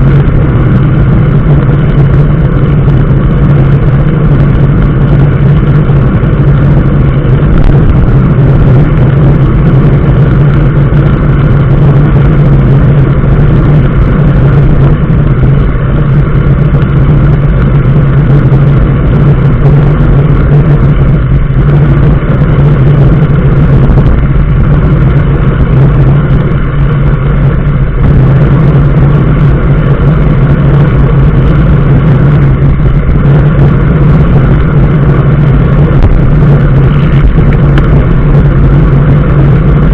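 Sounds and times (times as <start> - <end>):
low engine hum: 0.0 - 39.9
road and tyre noise: 0.0 - 39.9.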